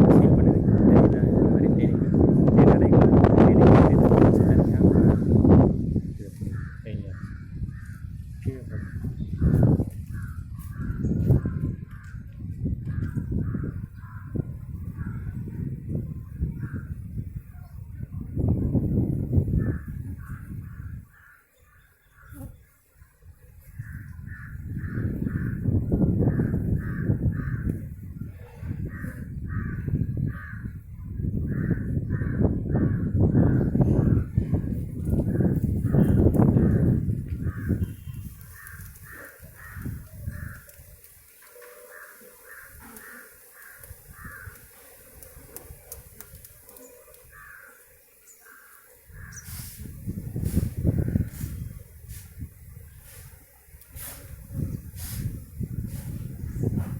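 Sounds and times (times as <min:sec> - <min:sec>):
crows cawing: 0:19.6 - 0:22.5, 0:23.8 - 0:25.7, 0:26.3 - 0:27.8, 0:28.8 - 0:30.8, 0:31.5 - 0:34.2, 0:35.3 - 0:49.7
bird calling: 0:35.5 - 0:49.8.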